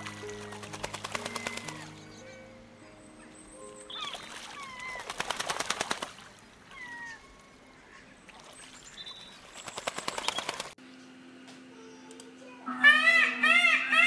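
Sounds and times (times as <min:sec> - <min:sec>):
bird wings flapping: 0:00.0 - 0:01.9, 0:04.1 - 0:06.4, 0:08.4 - 0:10.8.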